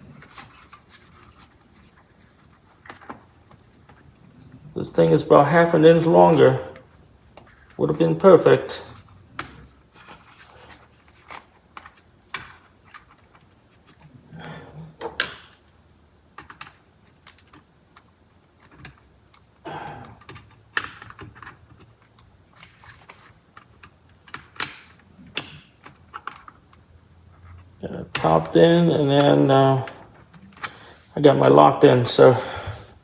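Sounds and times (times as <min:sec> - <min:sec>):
plastic parts clicking and rustling: 0:00.0 - 0:04.6, 0:15.0 - 0:28.5.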